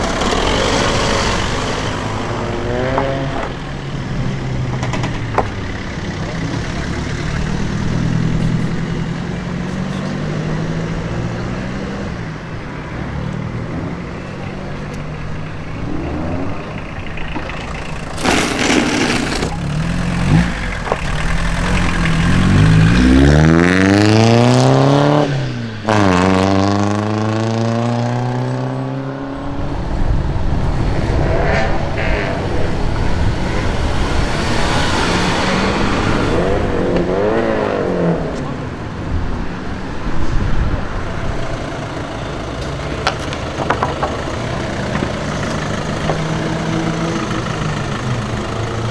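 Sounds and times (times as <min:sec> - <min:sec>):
loud engine blast: 0:00.0 - 0:04.6, 0:29.3 - 0:43.0
car accelerating hard: 0:00.0 - 0:48.9
car engines running low: 0:00.0 - 0:48.9.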